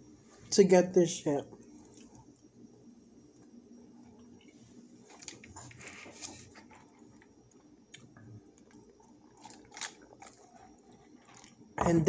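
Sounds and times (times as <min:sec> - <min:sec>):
wet chewing with mouth clicks: 0:01.7 - 0:02.5, 0:03.3 - 0:11.8.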